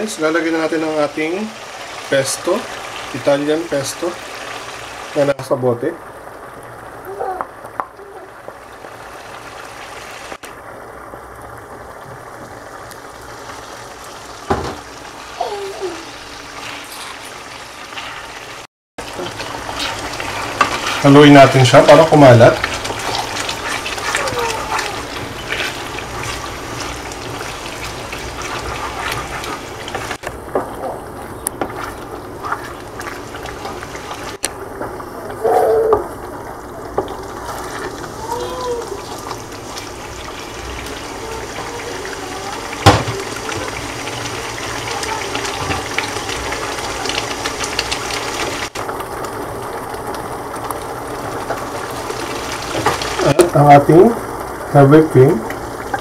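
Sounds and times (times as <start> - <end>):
food sizzling in a frying pan: 0.0 - 56.0
wooden spatula stirring: 19.0 - 35.0, 36.0 - 38.2.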